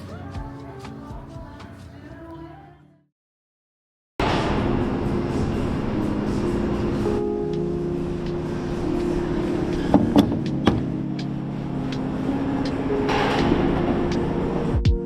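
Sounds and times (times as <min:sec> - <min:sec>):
vehicle rumbling: 0:04.2 - 0:14.9
low hums: 0:04.2 - 0:15.0.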